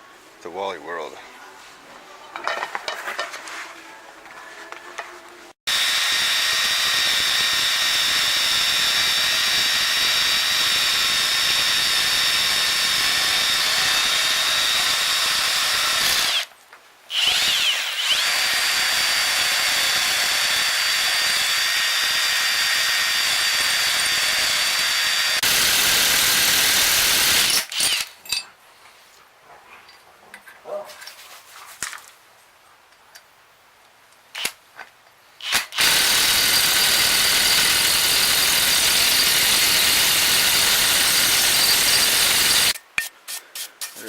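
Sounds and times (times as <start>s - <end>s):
electric power tool whining: 5.7s - 16.5s, 17.1s - 28.1s, 35.4s - 42.8s.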